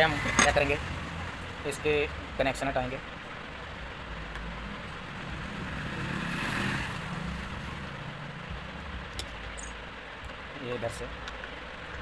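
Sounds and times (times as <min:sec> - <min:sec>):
vehicle passing: 0:00.0 - 0:02.5, 0:03.6 - 0:09.4.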